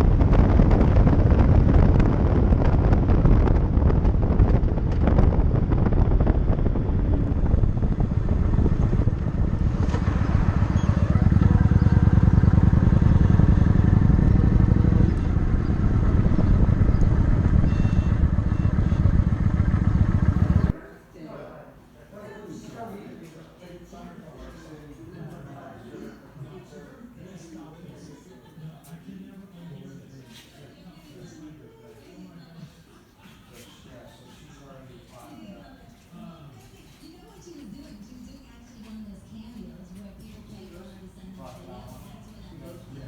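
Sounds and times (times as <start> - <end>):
motorcycle engine running: 0.0 - 20.8
wind buffeting microphone: 0.0 - 20.8.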